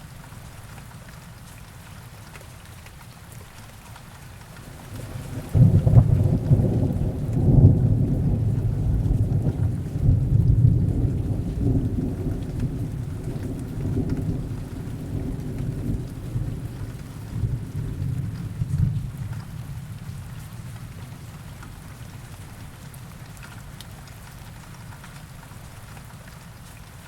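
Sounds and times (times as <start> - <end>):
steady rain: 0.0 - 27.0
thunder rumble: 4.6 - 21.1.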